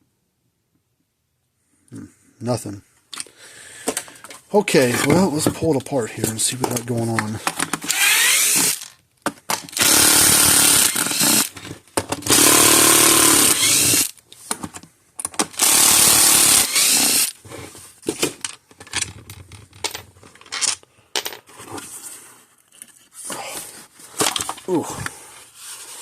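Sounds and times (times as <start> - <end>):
electric drill running: 7.9 - 8.9, 9.8 - 11.5, 12.3 - 14.1, 15.6 - 17.4.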